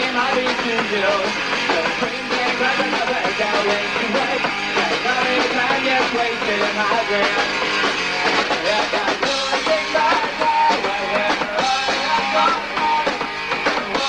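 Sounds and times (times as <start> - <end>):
punk rock band playing live: 0.0 - 14.0.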